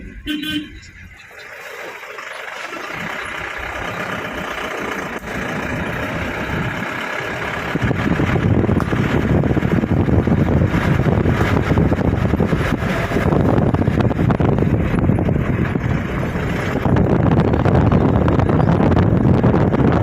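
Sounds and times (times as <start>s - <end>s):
floodwater rushing: 1.3s - 7.7s
wind buffeting microphone: 2.9s - 20.0s.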